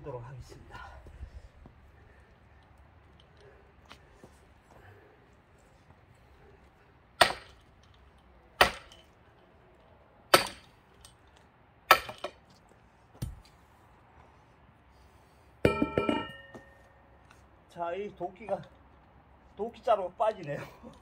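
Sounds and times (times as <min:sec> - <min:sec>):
axe striking log: 0:07.2 - 0:07.6, 0:08.6 - 0:09.0, 0:10.3 - 0:10.7, 0:11.9 - 0:12.4.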